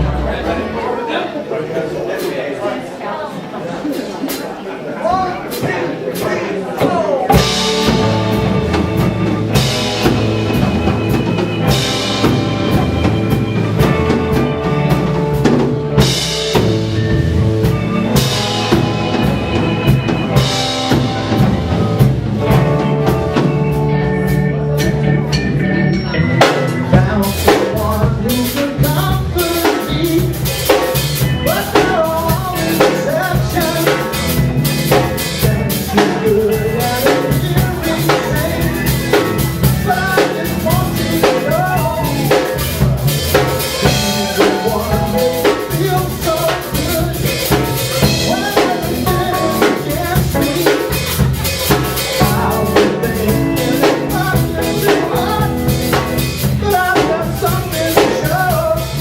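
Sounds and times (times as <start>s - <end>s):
live rock band playing: 0.0s - 2.4s, 3.8s - 59.0s.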